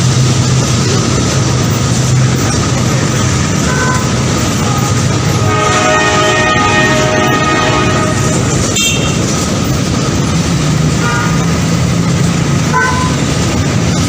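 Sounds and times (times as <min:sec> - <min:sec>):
train rumbling: 0:00.0 - 0:14.0
train horn chord: 0:03.7 - 0:09.3, 0:12.7 - 0:13.3.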